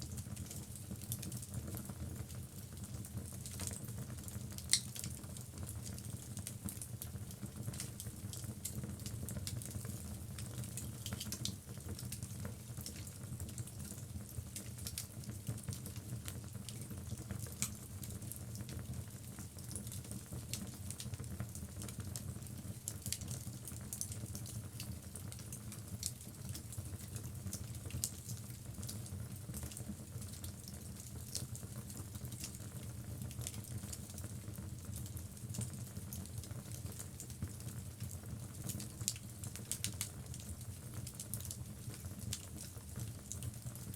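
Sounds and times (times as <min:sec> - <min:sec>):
wood crackling and popping: 0:04.6 - 0:05.2.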